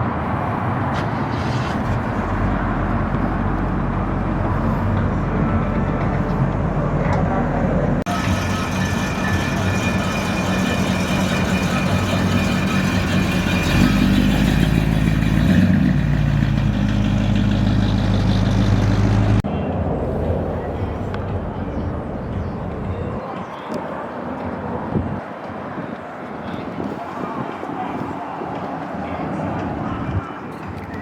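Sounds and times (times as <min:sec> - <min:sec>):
car engine rumbling: 0:00.0 - 0:23.2.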